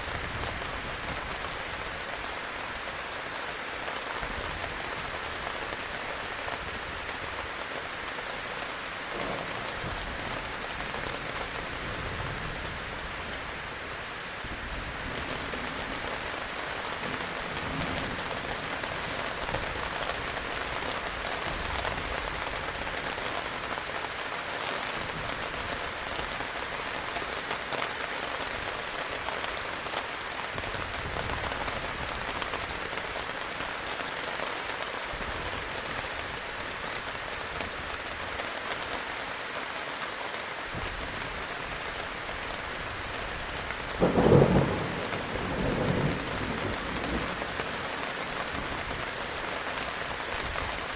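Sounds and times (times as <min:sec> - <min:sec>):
heavy rain: 0:00.0 - 0:50.9
thunder rumbling: 0:43.9 - 0:49.1
loud thunderclap: 0:44.0 - 0:47.5.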